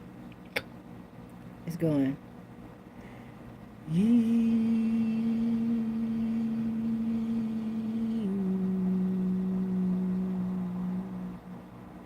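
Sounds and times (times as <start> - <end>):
person humming low note: 3.8 - 11.7.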